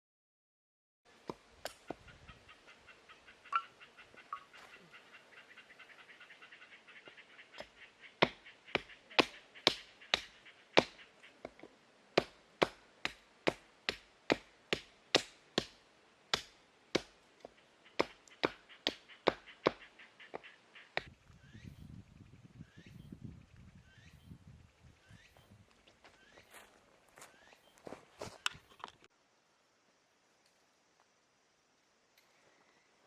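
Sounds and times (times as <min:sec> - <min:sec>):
faint high chirping: 0:18.7 - 0:28.8.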